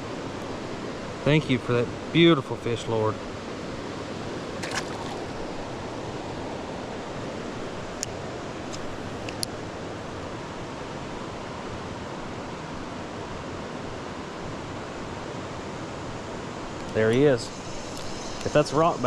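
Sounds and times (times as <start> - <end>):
creek water rushing over rocks: 3.4 - 9.3.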